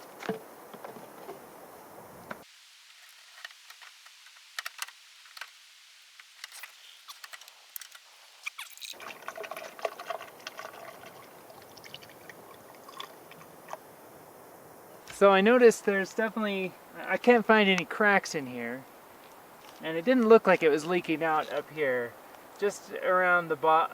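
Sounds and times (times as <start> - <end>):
coolant trickling and dripping: 7.1 - 13.8.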